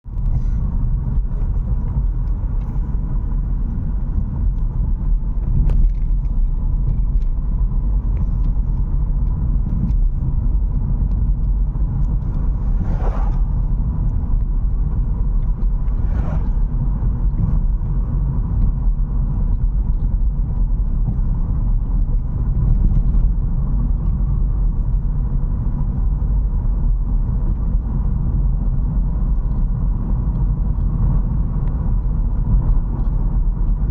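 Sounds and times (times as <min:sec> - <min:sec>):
car engine and tyres rumbling: 0:00.0 - 0:33.9
brief rushing sounds: 0:12.2 - 0:13.8, 0:15.7 - 0:17.0.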